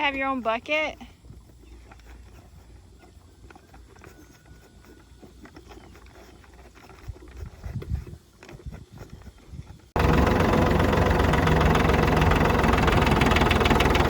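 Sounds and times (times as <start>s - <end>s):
horses crunching feed: 0.0s - 9.8s.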